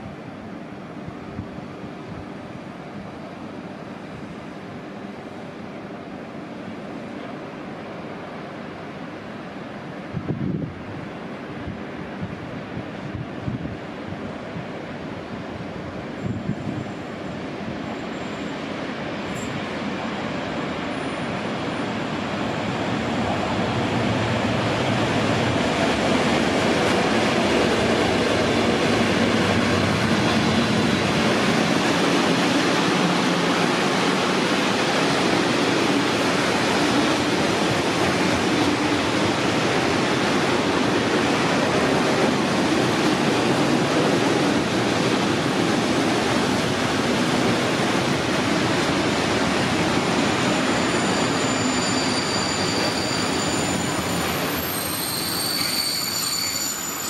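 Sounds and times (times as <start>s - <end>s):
train wheels on rails: 6.6s - 57.0s
high wheel squeal: 50.2s - 57.0s.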